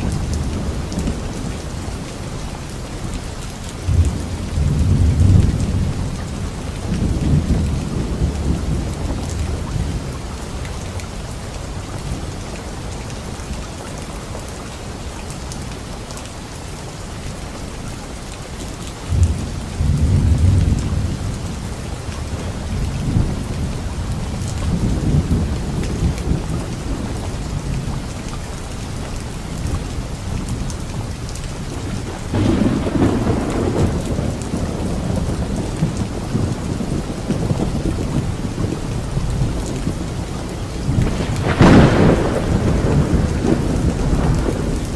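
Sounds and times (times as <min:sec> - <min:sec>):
steady rain falling: 0:00.0 - 0:44.9
thunder rumbling: 0:03.7 - 0:10.4, 0:19.1 - 0:44.9.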